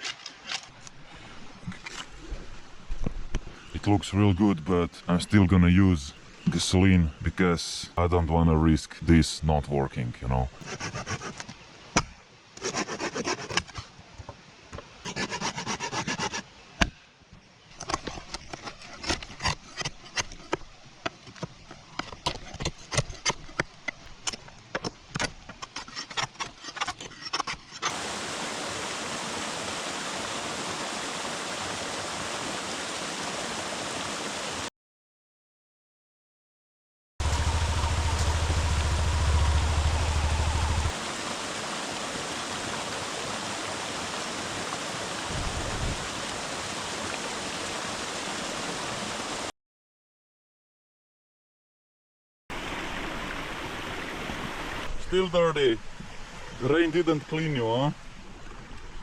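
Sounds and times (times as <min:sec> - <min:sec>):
heavy low rumble: 0:37.2 - 0:41.0
steady rushing noise: 0:37.2 - 0:42.6.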